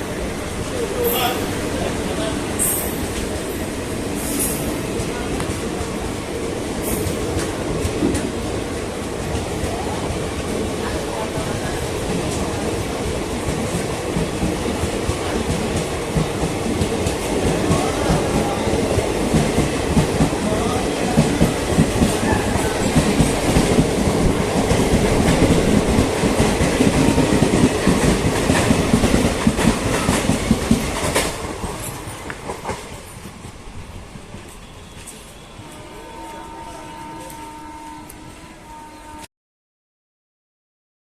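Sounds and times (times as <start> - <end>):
train coach rattling: 0.0 - 35.5
train wheels clattering: 11.4 - 33.6.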